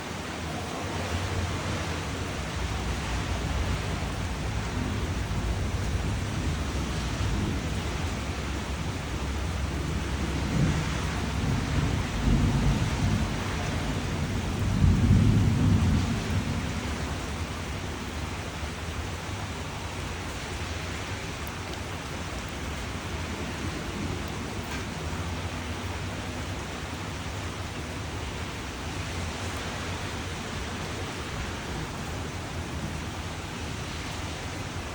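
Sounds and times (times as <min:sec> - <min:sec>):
thunder rumbling: 0:00.0 - 0:20.1
steady rain: 0:00.0 - 0:34.9.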